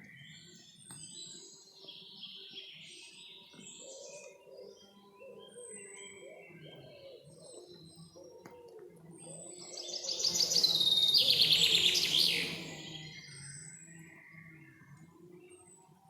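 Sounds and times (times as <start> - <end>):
songbird rapid trilling: 9.9 - 13.2.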